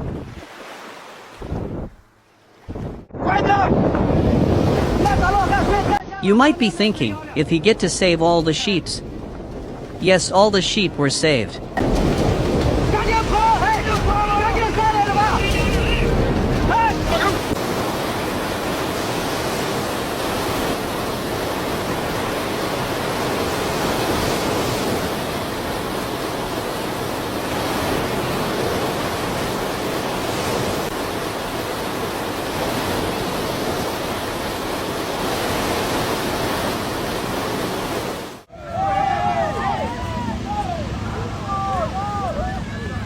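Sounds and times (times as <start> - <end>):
water rushing: 0.0 - 3.1, 3.9 - 43.0.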